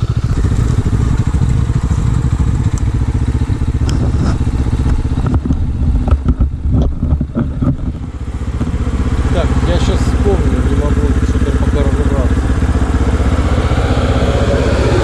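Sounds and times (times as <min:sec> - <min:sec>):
motorcycle engine running: 0:00.0 - 0:15.0
knocks and rattles: 0:03.8 - 0:08.8.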